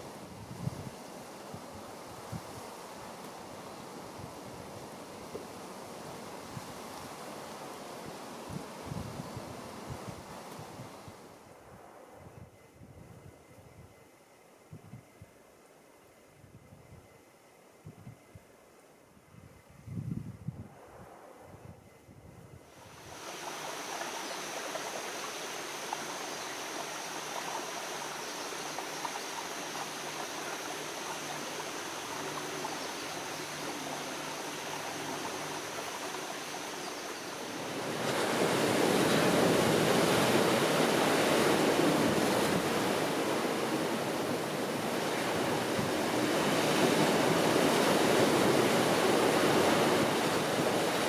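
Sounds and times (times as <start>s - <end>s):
moving water: 22.7s - 51.0s
ocean surf: 22.8s - 51.0s.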